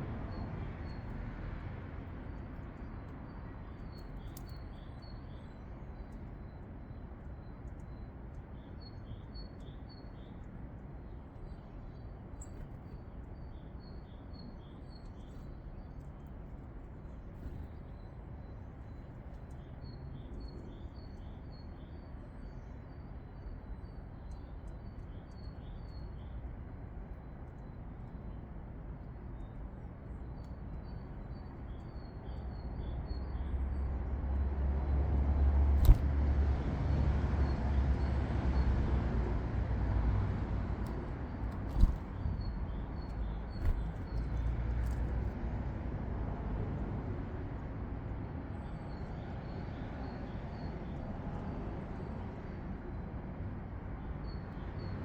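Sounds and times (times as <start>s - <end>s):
songbird singing: 2.2s - 16.4s, 17.0s - 26.6s, 40.6s - 45.2s
vehicle rumble: 33.5s - 48.1s
sharp click: 35.8s - 36.1s.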